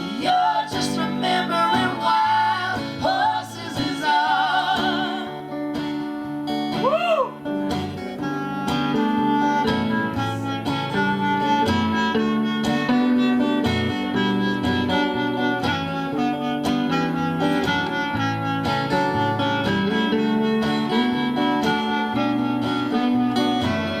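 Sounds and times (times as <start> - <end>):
strummed acoustic guitar: 0.0 - 24.0
sustained melody line: 7.4 - 24.0.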